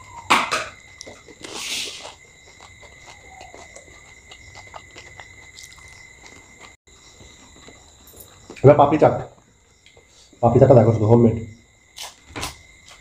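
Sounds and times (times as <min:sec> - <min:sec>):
people crunching crisp food: 0:00.8 - 0:08.6.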